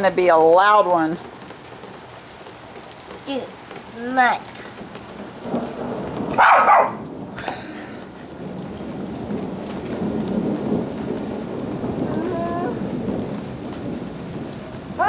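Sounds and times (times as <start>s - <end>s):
heavy rain: 0.0s - 15.0s
rolling thunder: 4.8s - 15.0s.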